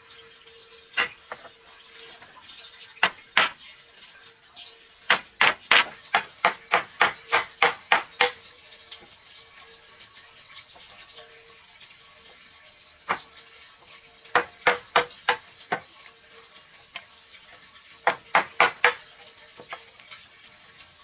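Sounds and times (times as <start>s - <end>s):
high drone of insects: 0.0s - 21.0s
tool striking wood: 3.0s - 3.6s, 5.1s - 8.4s, 14.4s - 15.8s, 18.0s - 19.0s.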